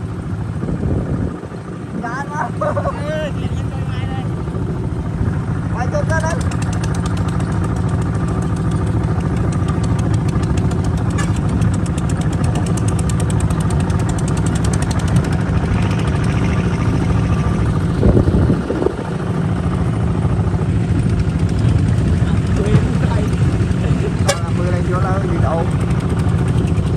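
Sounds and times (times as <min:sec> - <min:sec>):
diesel engine chugging: 0:00.0 - 0:26.9.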